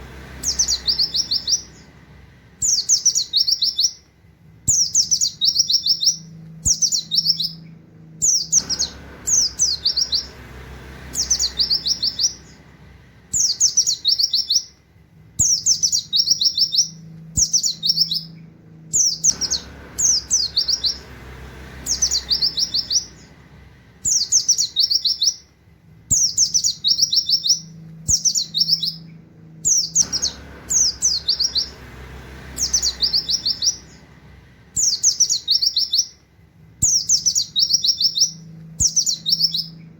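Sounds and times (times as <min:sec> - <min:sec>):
bird singing high notes: 0:04.7 - 0:10.4, 0:15.4 - 0:21.2, 0:21.8 - 0:25.5, 0:26.1 - 0:31.9, 0:32.5 - 0:34.2.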